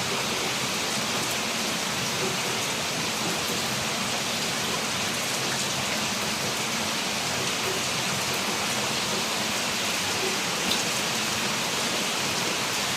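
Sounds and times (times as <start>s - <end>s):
heavy rain pouring: 0.0s - 12.9s.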